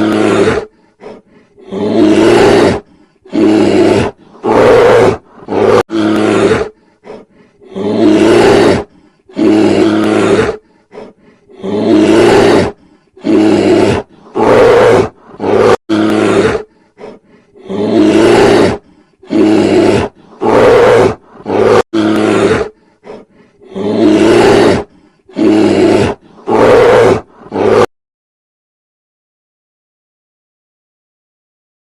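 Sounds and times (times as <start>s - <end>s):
large animal roaring: 1.6s - 6.7s, 11.6s - 16.7s, 17.6s - 22.7s, 23.7s - 27.9s.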